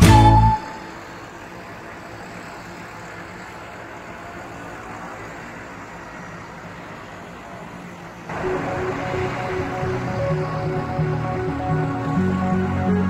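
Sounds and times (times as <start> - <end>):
music: 0.0 - 0.8, 8.3 - 13.0
tractor engines rumbling: 0.0 - 13.0.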